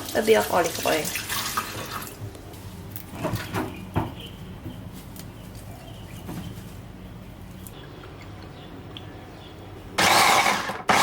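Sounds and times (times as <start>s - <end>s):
kitchen items knocking and clattering: 3.1s - 4.9s.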